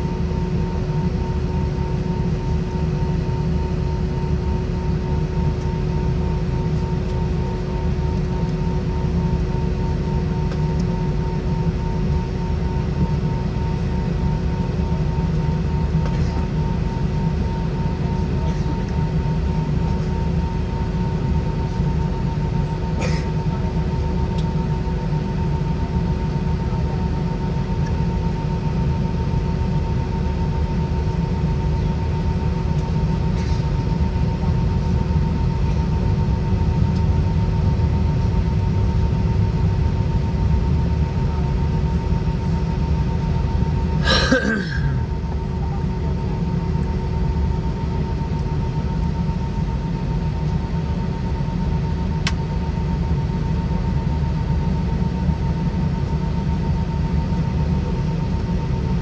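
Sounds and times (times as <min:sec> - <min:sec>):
low cabin rumble: 0:00.0 - 0:59.0
low engine hum: 0:25.8 - 0:56.0.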